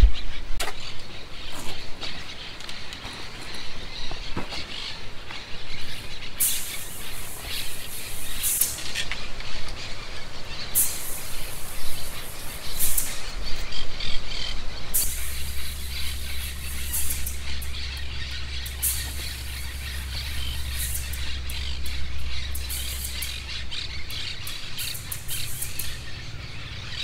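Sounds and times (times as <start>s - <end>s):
low steady hum: 0.0s - 27.0s
small birds chirping: 0.0s - 27.0s
short high hiss: 6.4s - 9.0s, 10.7s - 13.4s, 14.9s - 17.7s, 18.7s - 21.2s, 22.5s - 23.4s.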